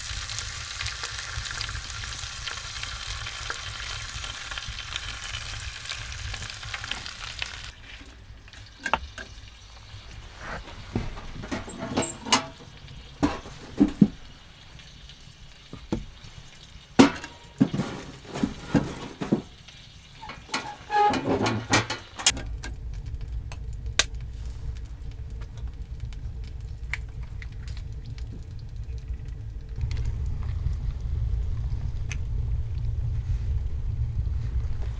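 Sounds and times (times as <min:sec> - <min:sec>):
cooking gear clinking and knocking: 0:08.6 - 0:14.7, 0:15.7 - 0:22.8
steady low rumble: 0:22.3 - 0:34.9.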